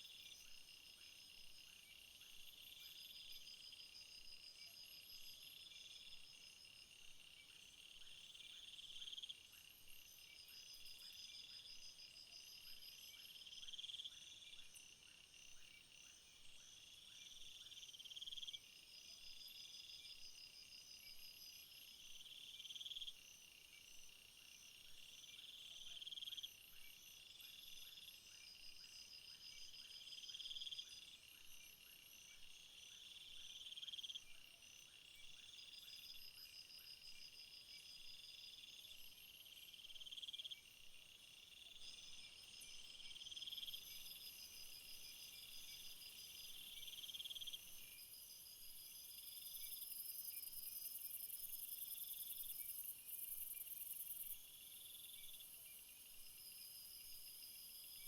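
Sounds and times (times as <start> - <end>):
crickets and grasshoppers trilling: 16.7 - 58.0.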